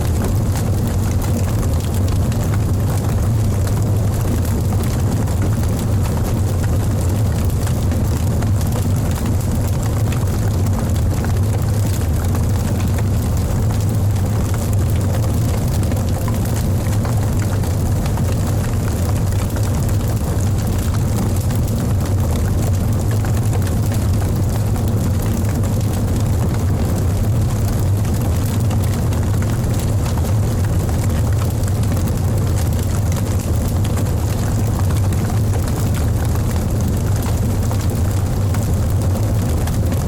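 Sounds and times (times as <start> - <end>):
wood fire crackling: 0.0 - 40.0.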